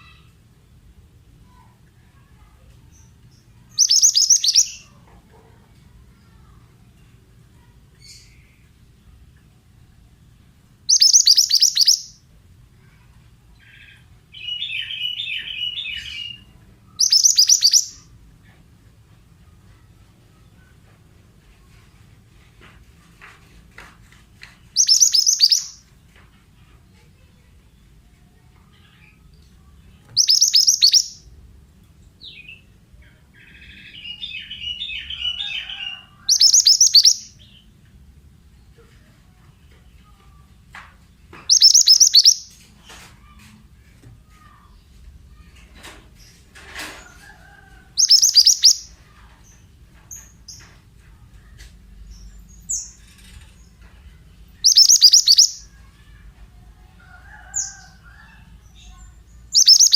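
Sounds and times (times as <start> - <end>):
bird warbling chatter: 3.8 - 4.8, 10.9 - 12.0, 17.0 - 18.0, 24.7 - 25.8, 30.2 - 31.2, 34.9 - 37.2, 41.5 - 42.5, 48.0 - 48.9, 54.6 - 55.6, 59.0 - 59.9
bird rapid high chipping: 3.8 - 4.9, 10.9 - 12.2, 14.4 - 18.1, 24.7 - 25.8, 30.2 - 31.3, 33.7 - 37.4, 41.5 - 42.6, 48.0 - 49.0, 54.6 - 55.7, 59.0 - 59.9.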